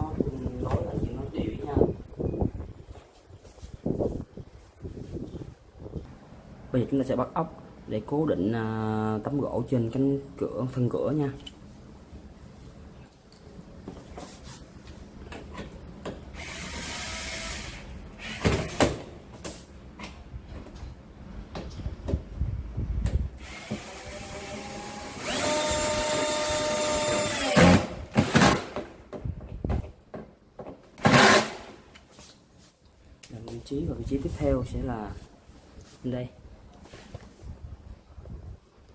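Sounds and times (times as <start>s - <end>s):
power drill driving screws: 16.4s - 18.8s, 23.4s - 28.8s, 31.0s - 31.7s.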